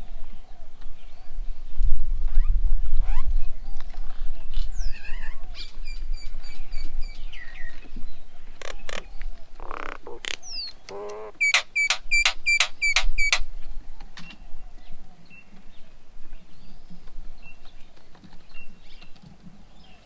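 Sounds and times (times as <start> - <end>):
birds calling and chirping: 4.8 - 13.6
harsh rasping bird call: 8.6 - 13.4.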